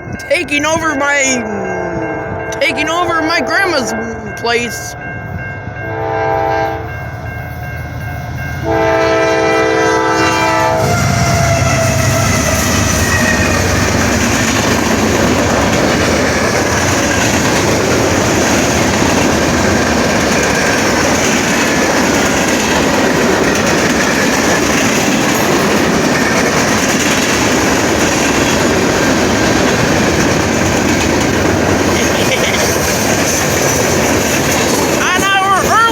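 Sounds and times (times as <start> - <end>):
train horn blowing: 1.4 - 4.4, 5.8 - 7.0, 8.6 - 14.0
train wheels rumbling on rails: 1.4 - 35.9.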